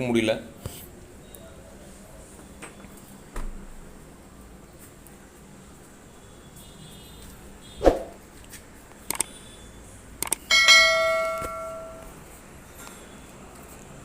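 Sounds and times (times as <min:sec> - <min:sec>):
metal object ringing like a bell: 0:10.5 - 0:12.1.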